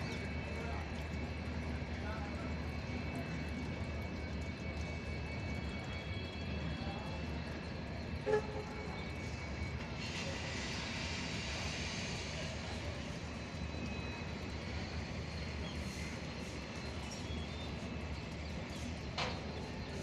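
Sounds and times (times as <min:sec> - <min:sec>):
hiss: 0:10.0 - 0:13.1.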